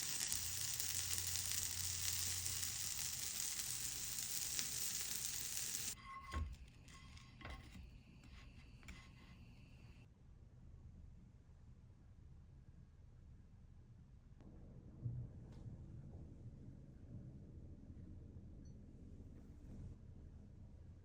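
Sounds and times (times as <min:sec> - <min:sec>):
steady hiss: 0:00.0 - 0:06.5.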